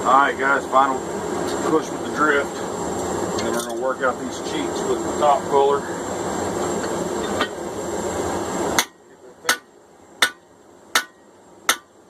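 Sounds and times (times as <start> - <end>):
hammer blows on hot steel: 8.7 - 12.0.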